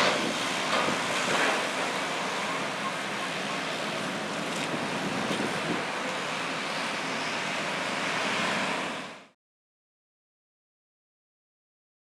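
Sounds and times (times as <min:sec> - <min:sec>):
ferry machinery running: 0:00.0 - 0:09.3.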